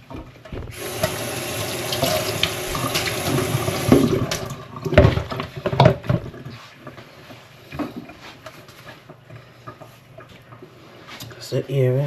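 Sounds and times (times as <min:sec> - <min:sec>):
kitchen tap shut off: 0:00.6 - 0:04.6.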